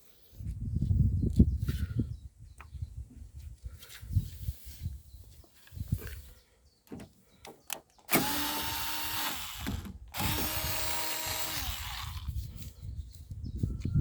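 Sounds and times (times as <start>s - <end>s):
power drill running: 8.1s - 12.3s.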